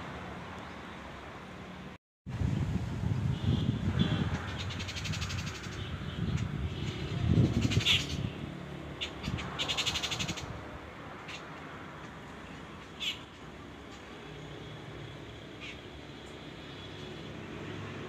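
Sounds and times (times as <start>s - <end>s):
rapid harsh rattling bird call: 4.4s - 8.3s, 9.0s - 10.5s, 12.8s - 14.1s
birds sharp high calls: 4.4s - 8.4s, 9.0s - 10.6s, 12.8s - 13.4s, 15.6s - 15.9s.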